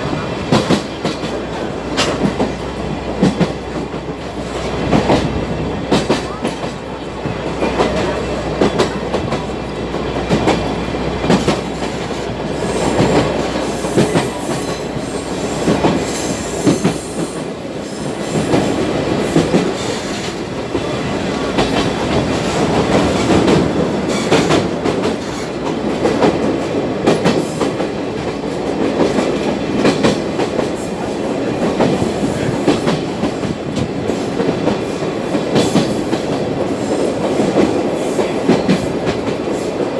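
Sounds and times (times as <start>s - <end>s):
train carriage rumbling on track: 0.0s - 39.9s
wheels clacking over rail joints: 0.0s - 39.9s.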